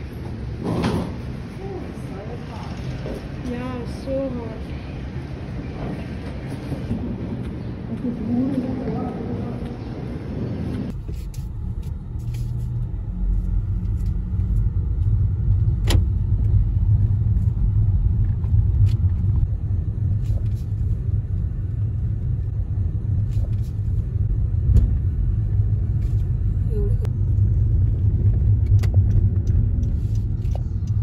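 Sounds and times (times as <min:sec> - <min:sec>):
car rumble from inside: 0:10.9 - 0:31.0.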